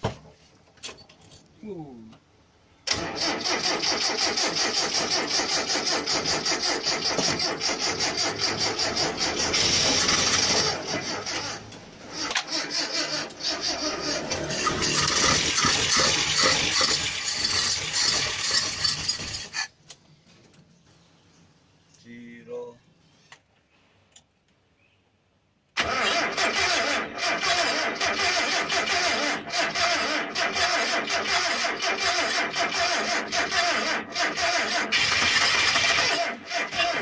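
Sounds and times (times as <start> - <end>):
engine cranked by starter: 2.8 - 19.6, 25.8 - 37.0.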